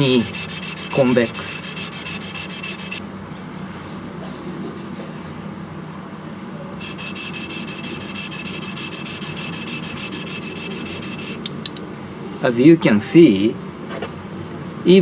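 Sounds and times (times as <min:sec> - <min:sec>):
blade grinding on whetstone: 0:00.0 - 0:03.0, 0:06.8 - 0:11.5.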